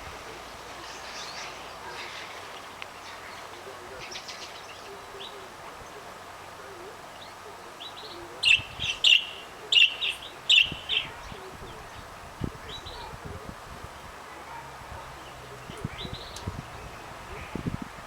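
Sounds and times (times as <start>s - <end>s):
canary chirping: 7.1s - 11.3s.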